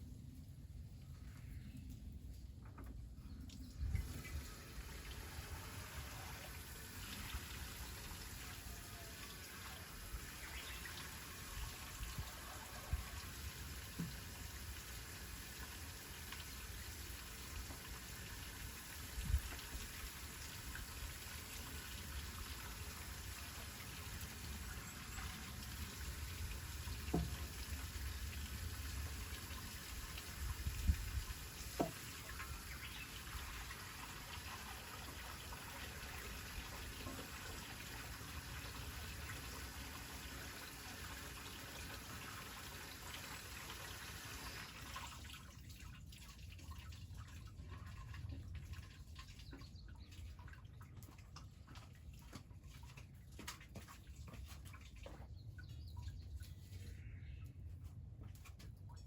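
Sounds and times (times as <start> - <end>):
water running: 3.9 - 45.3.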